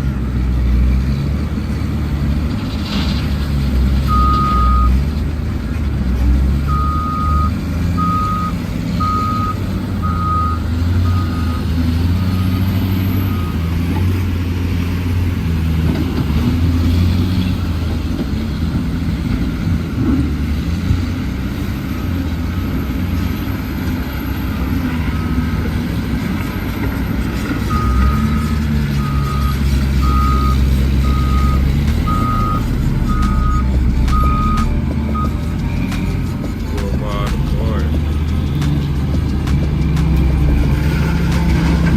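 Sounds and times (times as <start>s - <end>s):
diesel truck engine running: 0.0s - 41.9s
reversing alarm beeping: 4.1s - 5.0s, 6.7s - 13.8s, 27.7s - 36.2s.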